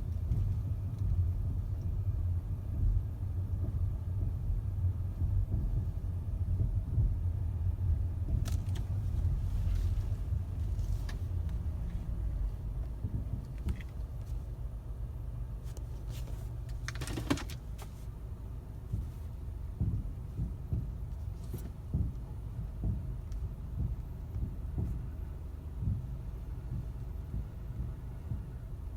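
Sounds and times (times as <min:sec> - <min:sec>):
car rumbling at low speed: 0:00.0 - 0:28.9
suspension knocks and clunk: 0:08.1 - 0:14.5, 0:15.7 - 0:18.2, 0:18.8 - 0:28.9.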